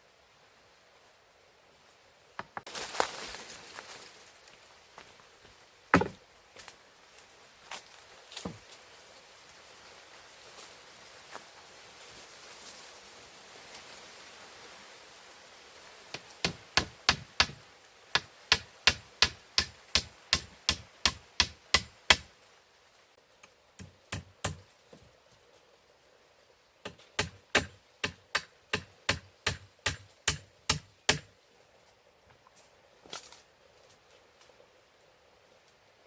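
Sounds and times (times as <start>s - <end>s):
hand tool striking wood: 6.0s - 6.2s, 16.2s - 17.6s, 18.2s - 22.3s, 23.8s - 24.7s, 26.8s - 31.3s.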